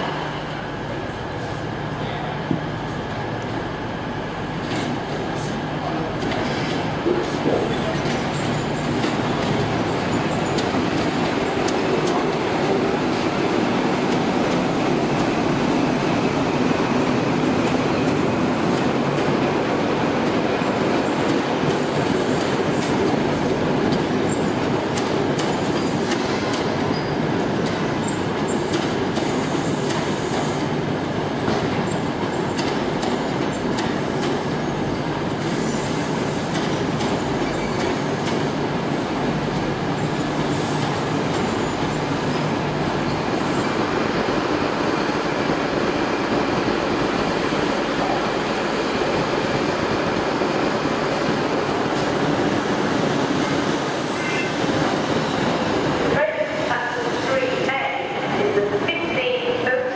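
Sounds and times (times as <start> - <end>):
train rumbling past: 0.0 - 59.9.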